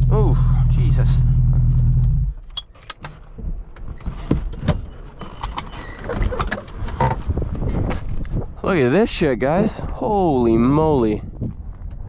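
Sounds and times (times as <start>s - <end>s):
keys jangling: 2.4s - 3.2s.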